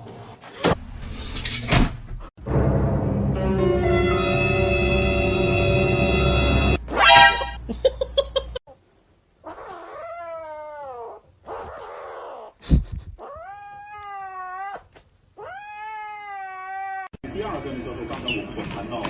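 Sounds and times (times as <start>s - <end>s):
cat yowling: 9.5s - 12.5s, 13.2s - 17.1s.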